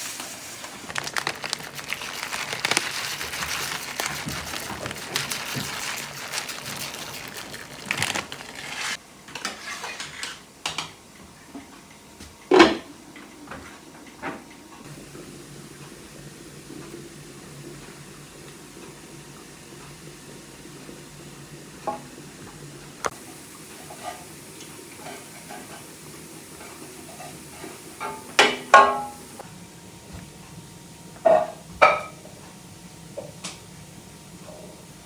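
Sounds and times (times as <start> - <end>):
kitchenware clinking: 28.0 - 29.3.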